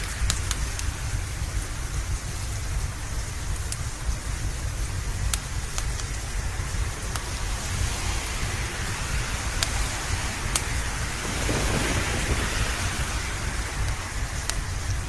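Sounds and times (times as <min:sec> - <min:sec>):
low background rumble: 0:00.0 - 0:15.0
steady rain: 0:00.0 - 0:15.0
wood fire crackling: 0:00.0 - 0:15.0
thunder rolling: 0:06.4 - 0:15.0.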